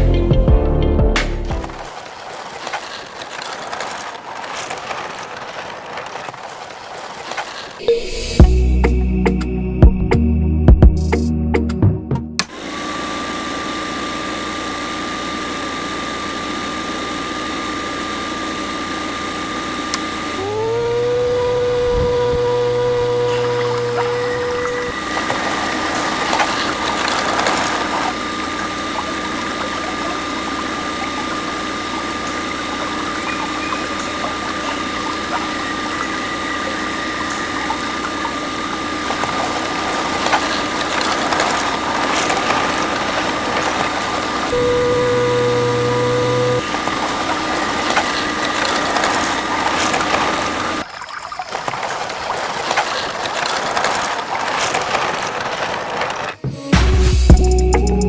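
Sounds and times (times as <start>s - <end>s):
low steady hum: 12.4s - 51.4s
small electric pump motor whining: 12.4s - 56.5s
water flowing hiss: 22.4s - 55.5s.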